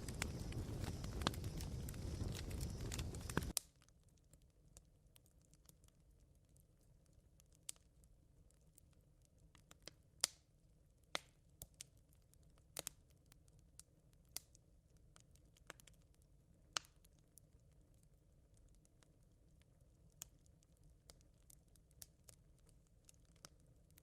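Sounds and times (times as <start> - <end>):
faint low rumble: 0.0 - 3.5
campfire embers crackling: 0.0 - 24.0.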